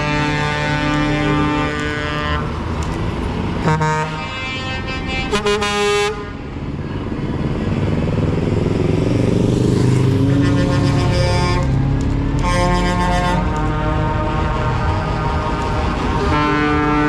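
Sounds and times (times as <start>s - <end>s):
held horn tone: 0.0s - 2.8s, 10.1s - 17.0s
truck air horn blasts: 0.0s - 2.8s, 3.6s - 6.5s, 10.2s - 17.0s
truck engines running: 0.0s - 17.0s.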